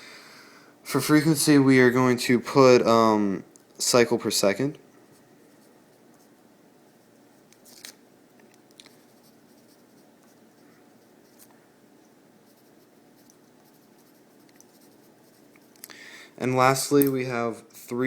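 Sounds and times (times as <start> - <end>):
faint room hiss: 0.0 - 18.0
pen scratching while writing: 12.5 - 15.7.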